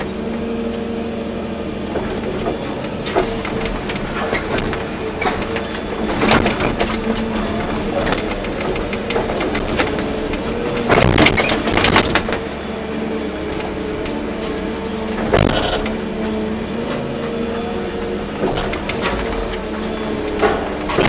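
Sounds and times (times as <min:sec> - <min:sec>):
excavator diesel engine running: 0:00.0 - 0:21.0
clanks and knocks: 0:01.8 - 0:21.0.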